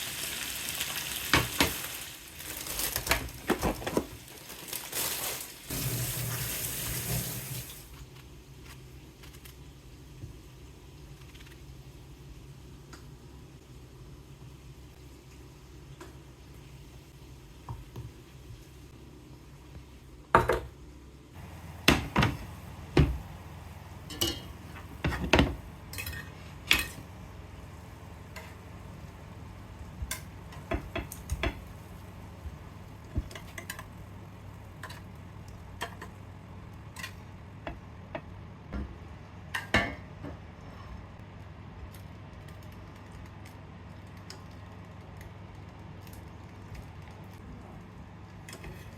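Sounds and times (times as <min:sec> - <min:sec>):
low steady hum: 0:07.3 - 0:48.9
dishes and cutlery clinking: 0:24.0 - 0:27.0.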